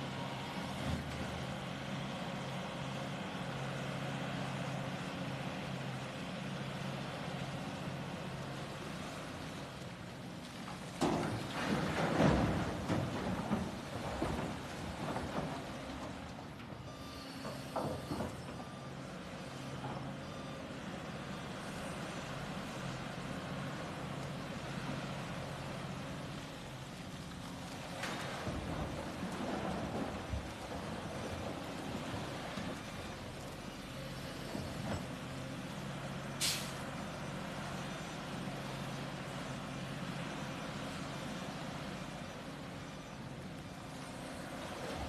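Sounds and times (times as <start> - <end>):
air brake hiss: 36.4 - 36.8.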